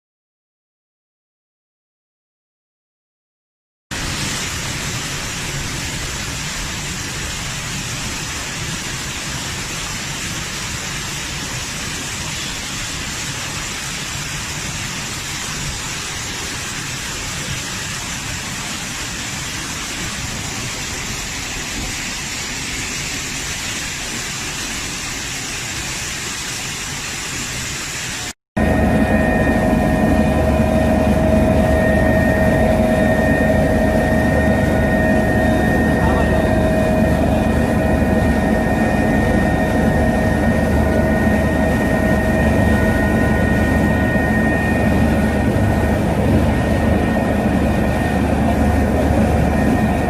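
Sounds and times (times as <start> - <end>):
heavy rain pouring: 3.9 - 28.4.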